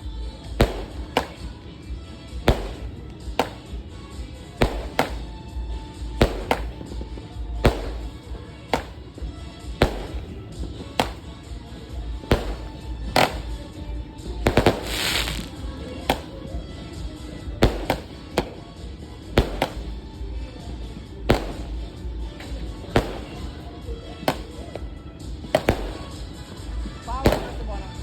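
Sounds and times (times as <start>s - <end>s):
fireworks crackling hiss: 0.0s - 1.5s, 2.2s - 3.8s, 4.5s - 9.1s, 9.8s - 11.4s, 12.2s - 16.5s, 17.6s - 18.6s, 19.4s - 24.8s, 25.6s - 28.0s
fireworks bangs: 0.6s - 1.6s, 2.3s - 3.8s, 4.5s - 16.7s, 17.6s - 18.7s, 19.3s - 20.2s, 21.3s - 26.4s, 27.0s - 28.0s.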